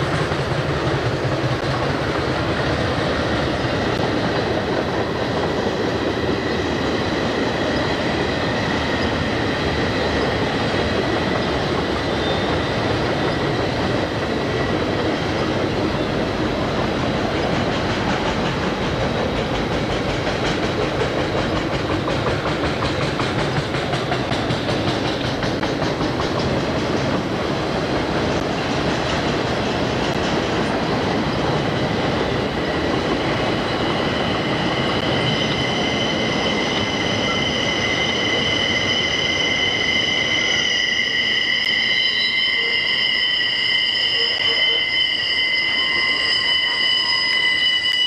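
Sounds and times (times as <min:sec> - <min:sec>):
freight train wheels rumbling: 0:00.0 - 0:48.0
shrill wheel squeal: 0:06.4 - 0:16.2, 0:31.2 - 0:48.0.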